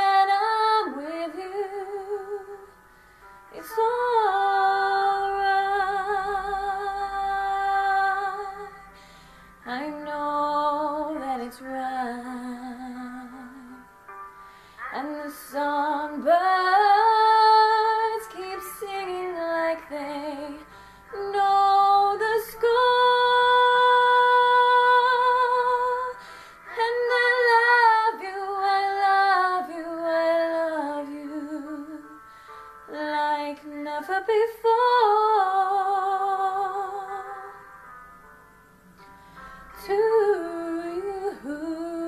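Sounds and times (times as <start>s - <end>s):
woman singing: 0.0s - 2.7s, 3.5s - 8.9s, 9.6s - 13.9s, 14.8s - 32.2s, 32.9s - 37.6s, 39.8s - 42.0s.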